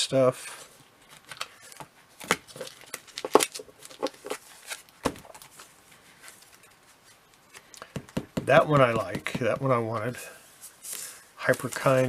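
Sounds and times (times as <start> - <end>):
plastic bags crinkling: 1.3 - 6.7.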